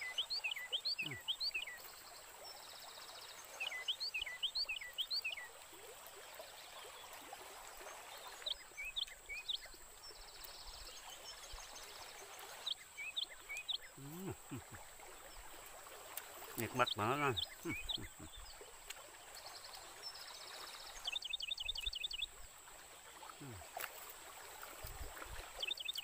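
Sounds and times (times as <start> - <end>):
bird chirping: 0.0 - 1.8, 12.6 - 14.8, 16.6 - 18.6, 25.6 - 26.0.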